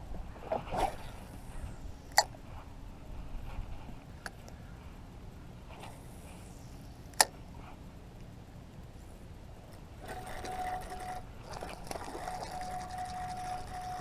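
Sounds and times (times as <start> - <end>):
thin steady whine: 0.0 - 14.0
fishing reel whirring: 10.0 - 14.0.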